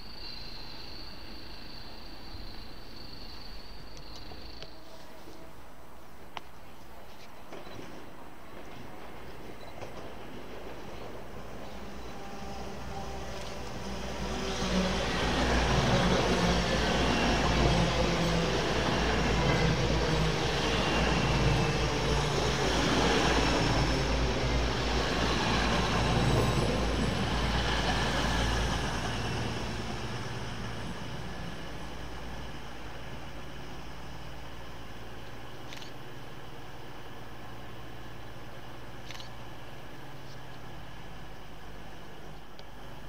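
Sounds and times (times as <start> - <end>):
diesel train passing: 7.5 - 43.0.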